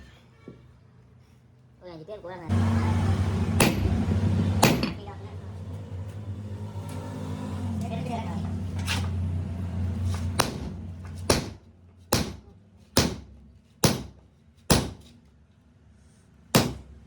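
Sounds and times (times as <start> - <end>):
low machine hum: 2.4 - 13.3
hammer striking metal: 3.2 - 5.1, 10.2 - 15.1, 16.5 - 17.0.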